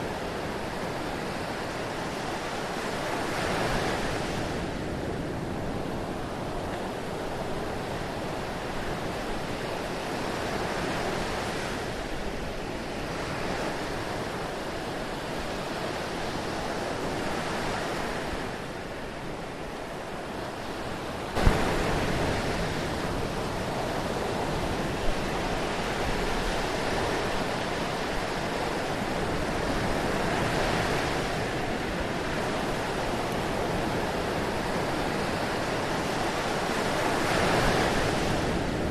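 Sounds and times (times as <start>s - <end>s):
surf washing in: 0.0s - 38.9s.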